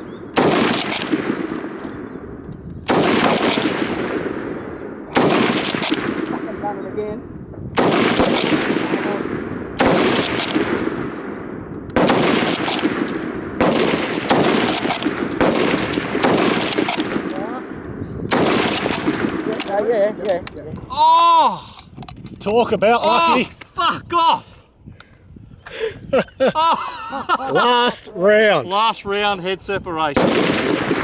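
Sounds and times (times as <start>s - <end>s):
rifle shots with echo: 0.0s - 6.9s, 7.8s - 20.2s, 30.2s - 31.0s.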